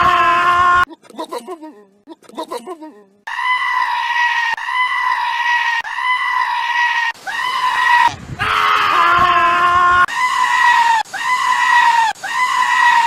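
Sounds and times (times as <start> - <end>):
high scream-like goat call: 3.3 - 13.0.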